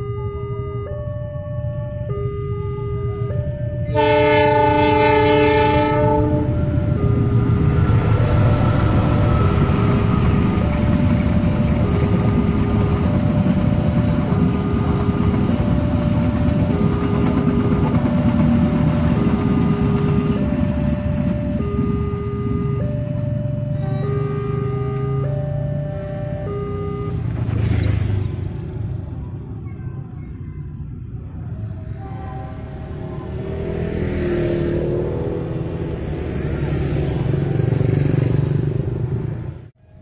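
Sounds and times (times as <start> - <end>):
level-crossing signal chiming: 0.0 - 4.0, 6.6 - 27.3
train rumbling across crossing: 0.0 - 40.0
locomotive horn: 2.4 - 9.3, 19.1 - 27.4, 31.8 - 33.7.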